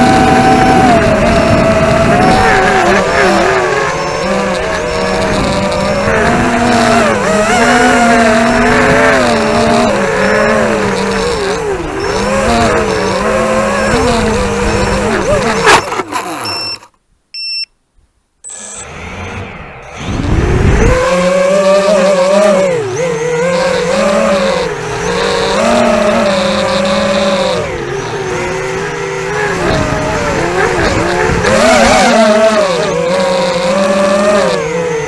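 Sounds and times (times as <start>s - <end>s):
drone motors whining: 0.0s - 17.0s, 18.4s - 35.0s
short electronic beep: 15.6s - 17.8s, 18.4s - 20.2s.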